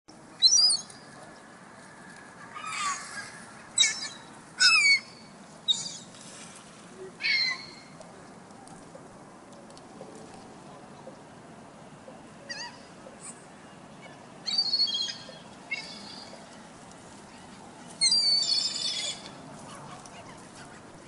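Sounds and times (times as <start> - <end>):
gulls calling: 12.4 - 16.4, 17.3 - 21.0.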